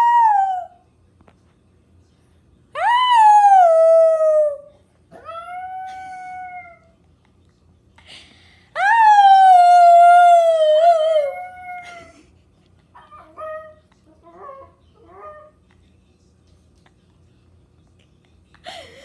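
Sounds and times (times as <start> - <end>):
dog howling: 2.8 - 7.0, 13.0 - 15.6.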